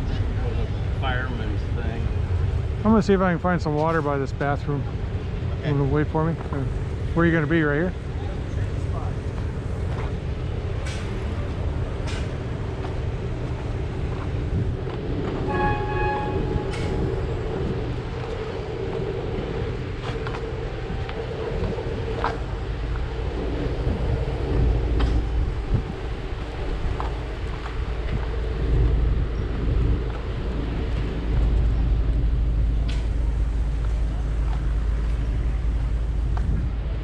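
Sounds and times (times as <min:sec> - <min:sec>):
engine rumble: 0:00.0 - 0:37.0
wind buffeting microphone: 0:00.0 - 0:37.0
pulsed horn toot: 0:15.5 - 0:17.0.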